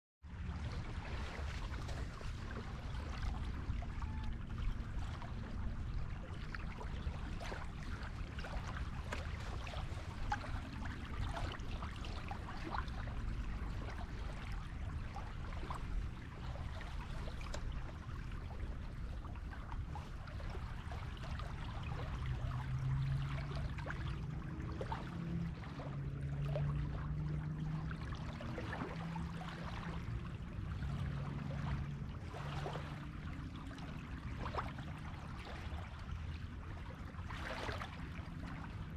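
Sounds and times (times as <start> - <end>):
low hum shifting pitch: 0.3 - 17.7
waves washing on a beach: 0.3 - 38.9.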